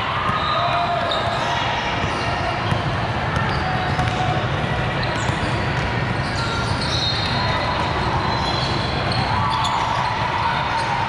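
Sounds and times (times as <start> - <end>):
sneakers squeaking: 0.1 - 11.0
basketball bouncing on court: 1.9 - 6.1.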